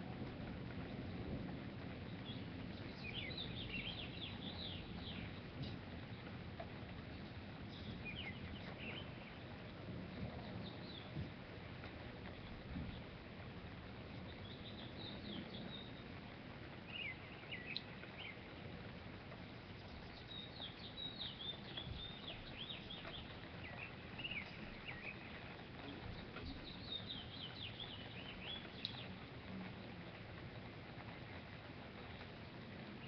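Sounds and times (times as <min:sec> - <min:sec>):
songbirds chirping: 0:00.0 - 0:33.0
steady background hiss: 0:00.0 - 0:33.0.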